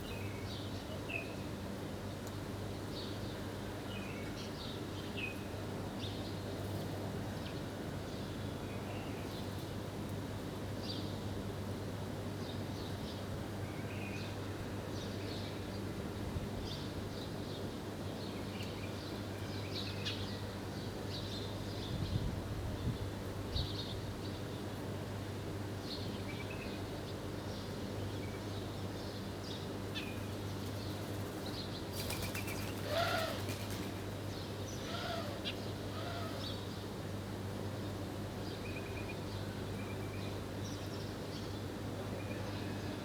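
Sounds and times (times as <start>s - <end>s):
wings flapping: 30.8s - 34.0s
low bird calls: 32.5s - 33.7s, 34.8s - 36.6s.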